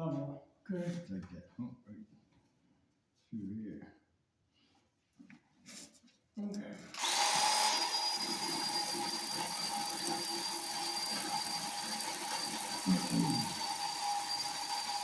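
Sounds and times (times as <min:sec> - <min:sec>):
electric chainsaw whining: 0:06.9 - 0:15.0.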